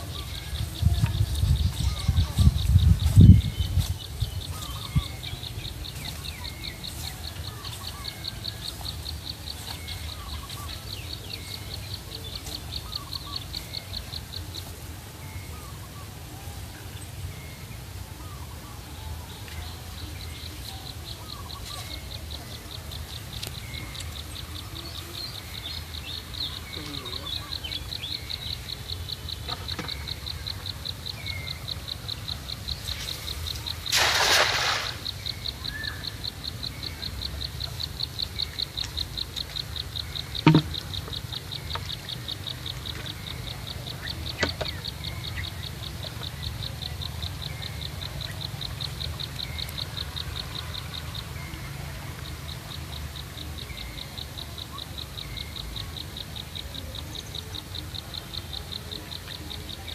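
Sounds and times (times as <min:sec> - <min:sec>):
sharp knock: 0:40.4 - 0:40.7.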